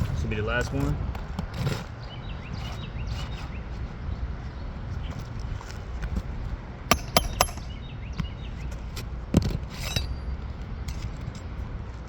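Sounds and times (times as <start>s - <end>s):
pry tool metal clicks: 6.9s - 7.6s.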